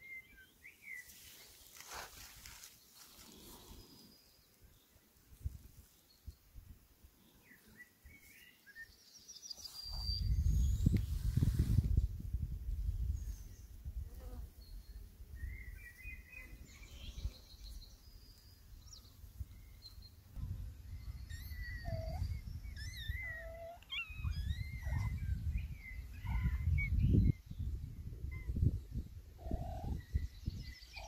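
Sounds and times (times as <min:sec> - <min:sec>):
small birds chirping: 0:00.0 - 0:06.6, 0:07.2 - 0:12.0, 0:12.7 - 0:31.0
wind rumble on microphone: 0:09.6 - 0:31.0.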